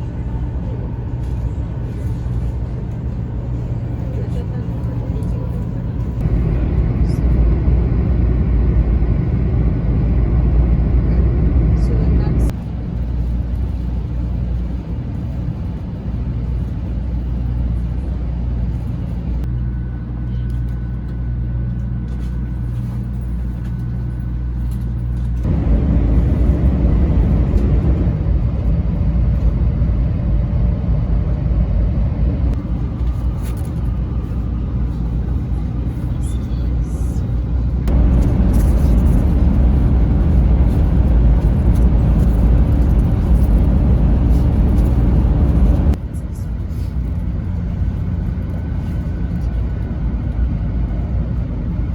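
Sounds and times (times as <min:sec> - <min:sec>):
train interior low rumble: 0:00.0 - 0:51.9.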